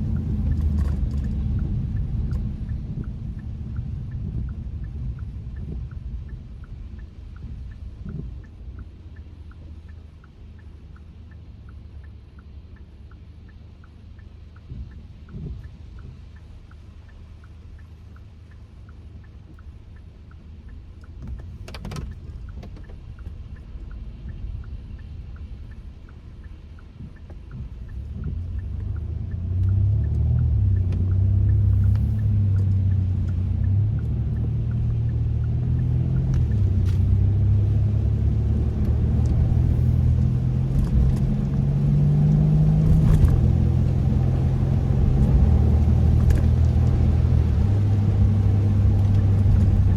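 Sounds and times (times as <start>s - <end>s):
car engine accelerating: 0.0s - 8.8s, 26.8s - 49.9s
light regular ticking: 0.0s - 49.9s.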